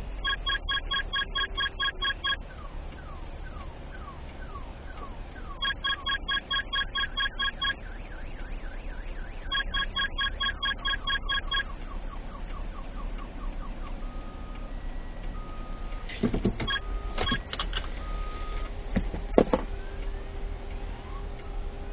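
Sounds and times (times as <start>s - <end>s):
street traffic hum: 0.0s - 21.9s
car alarm beeping and chirping: 0.2s - 18.7s.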